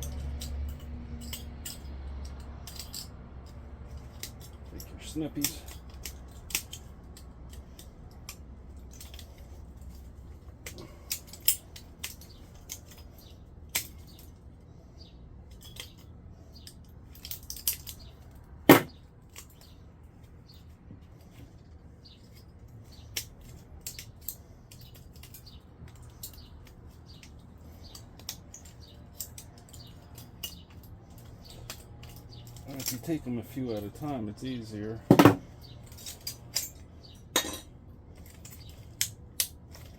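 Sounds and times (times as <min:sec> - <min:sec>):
small metal clicks: 0:00.0 - 0:34.2, 0:35.4 - 0:39.9
metallic clank: 0:18.7 - 0:19.0, 0:35.1 - 0:37.7.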